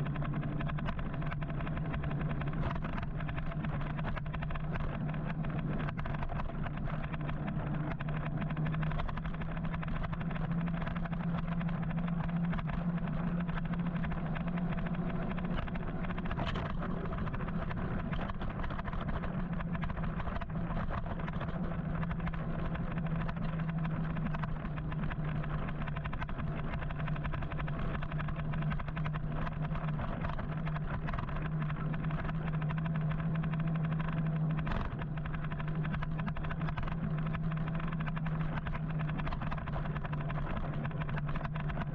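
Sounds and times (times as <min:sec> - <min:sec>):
electric motorcycle hum: 0:00.0 - 0:41.9
road and traffic noise: 0:00.0 - 0:41.9.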